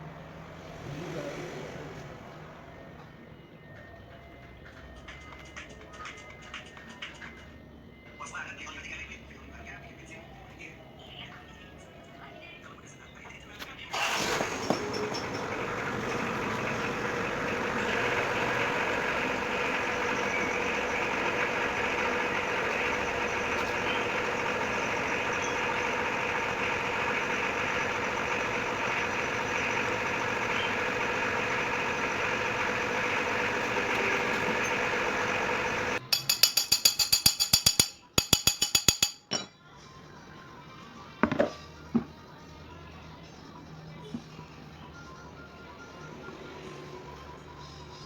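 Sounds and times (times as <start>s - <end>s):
engine humming: 10.0s - 36.1s.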